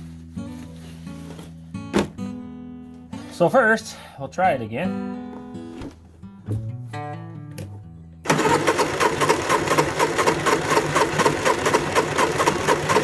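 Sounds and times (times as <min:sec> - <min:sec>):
soft guitar music: 0:00.0 - 0:08.3
generator engine cranking: 0:08.2 - 0:13.0.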